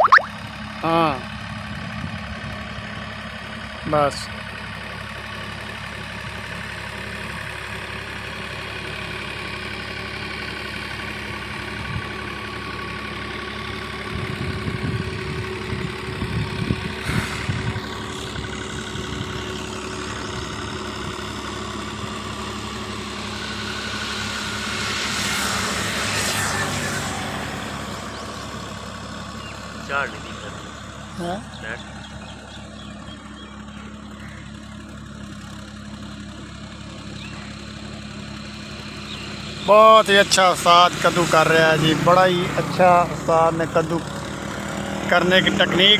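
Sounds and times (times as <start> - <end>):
tractor diesel engine running: 0.4 - 45.9.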